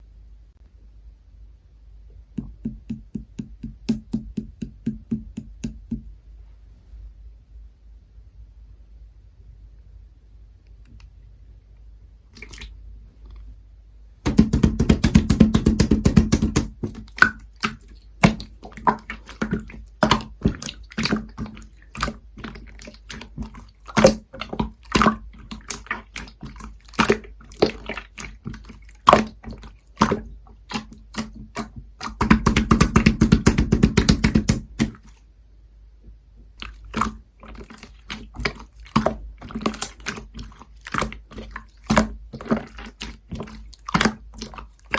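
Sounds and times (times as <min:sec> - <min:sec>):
slime squelching and popping: 0:12.4 - 0:12.8, 0:14.2 - 0:35.2, 0:36.6 - 0:44.9
slime crackling: 0:14.3 - 0:35.1, 0:36.6 - 0:44.9.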